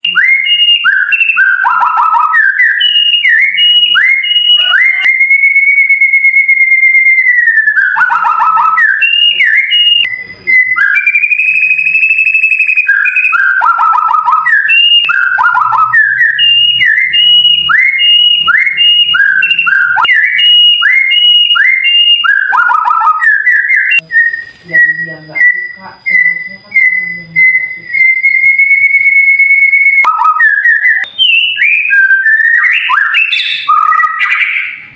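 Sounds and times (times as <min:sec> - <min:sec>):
bird singing whistled song: 0:00.0 - 0:34.9.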